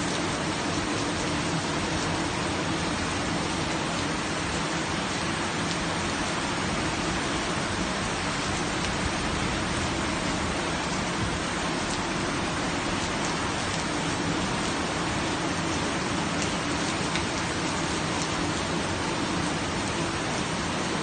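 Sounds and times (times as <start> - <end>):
steady rain hiss: 0.0 - 21.0
rain drop ticks: 5.6 - 5.9, 8.5 - 9.0, 10.8 - 12.2, 12.9 - 14.7, 15.7 - 18.4.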